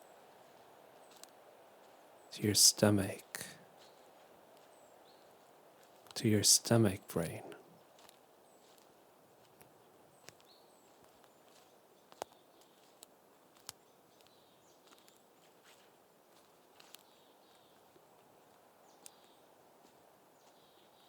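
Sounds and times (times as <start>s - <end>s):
soft hiss: 1.0s - 3.9s.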